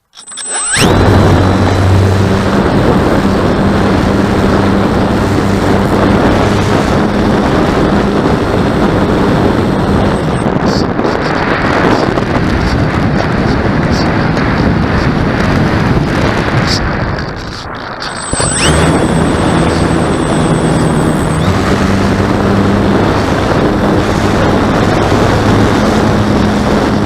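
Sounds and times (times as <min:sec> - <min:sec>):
low hum: 0:00.0 - 0:10.7, 0:17.5 - 0:27.0
wind buffeting microphone: 0:00.8 - 0:27.0.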